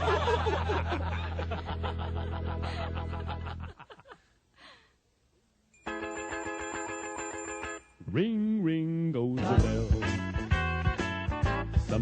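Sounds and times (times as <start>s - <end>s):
recorded character laughter: 0.0s - 4.2s
band music: 9.4s - 12.0s.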